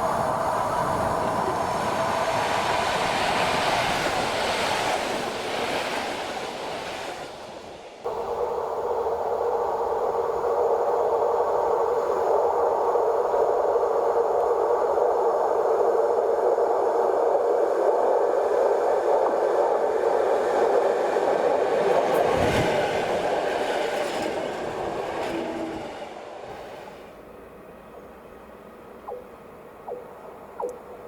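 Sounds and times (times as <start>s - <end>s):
train wheels rumbling on track: 19.8s - 28.4s.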